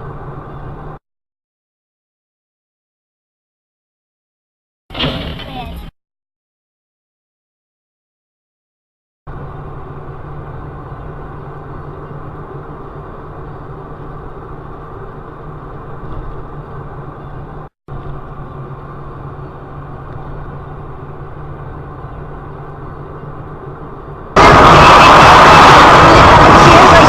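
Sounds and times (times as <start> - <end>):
vehicle engine and road drone: 0.0 - 1.0, 9.3 - 27.0.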